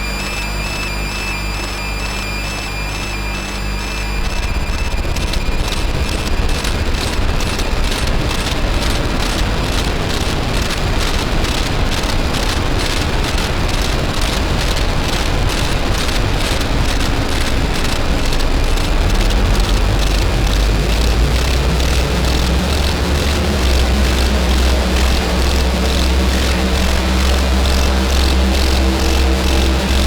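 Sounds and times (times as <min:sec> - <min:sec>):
distorted electronic noise: 0:00.0 - 0:30.0.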